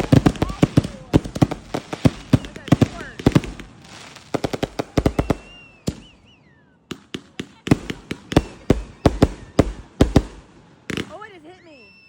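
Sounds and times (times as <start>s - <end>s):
firecrackers cracking: 0.0s - 12.0s
falling firework whistle: 4.8s - 6.9s, 8.5s - 9.9s, 11.4s - 12.0s.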